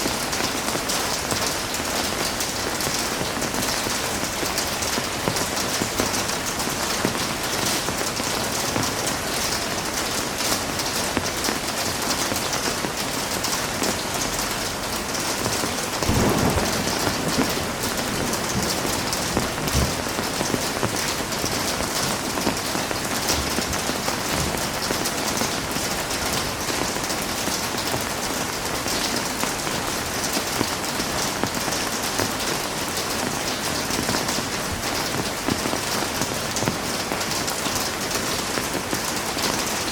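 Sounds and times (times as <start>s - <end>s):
heavy rain falling: 0.0s - 39.9s
low rumble of thunder: 16.0s - 22.5s.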